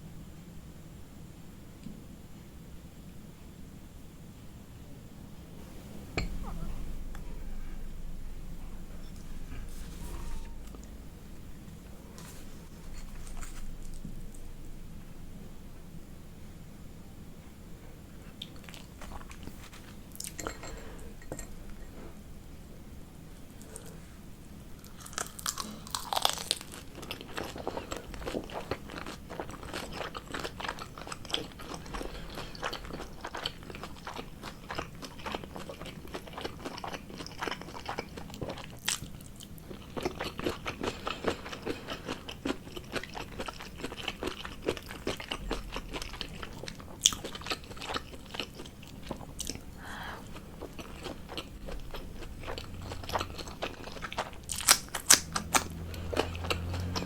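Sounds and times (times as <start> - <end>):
person chewing crunchy food: 8.9 - 14.8, 18.3 - 22.0, 24.8 - 57.0.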